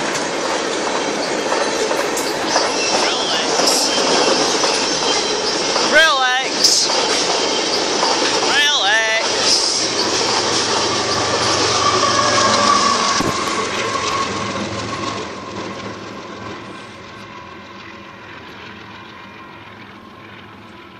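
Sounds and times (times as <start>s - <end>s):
freight train rolling past: 0.0s - 20.9s
thin steady squeal: 1.0s - 8.5s.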